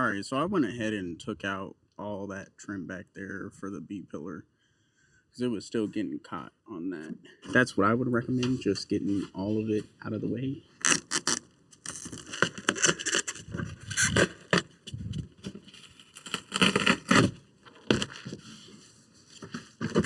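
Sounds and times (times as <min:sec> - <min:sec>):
board scraping and rustling: 0:10.8 - 0:20.0.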